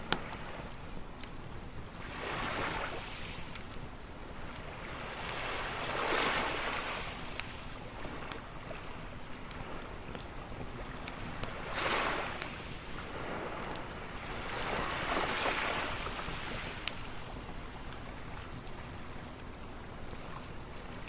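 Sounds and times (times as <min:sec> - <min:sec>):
campfire crackling and popping: 0:00.0 - 0:21.0
ocean waves washing ashore: 0:02.0 - 0:21.0.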